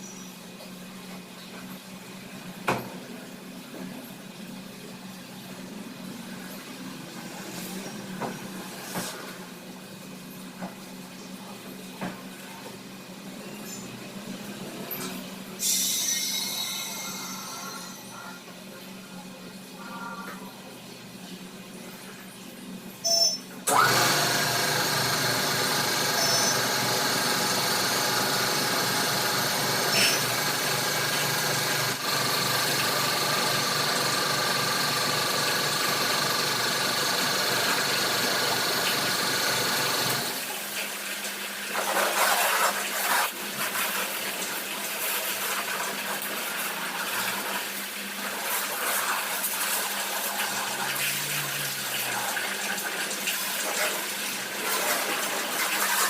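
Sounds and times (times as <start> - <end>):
motor humming: 23.7 - 40.4.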